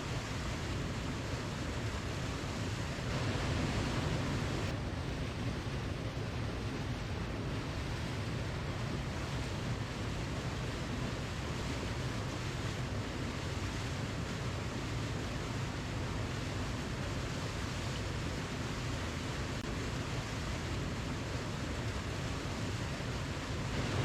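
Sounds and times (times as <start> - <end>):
waterfall rushing: 21.9 - 24.0.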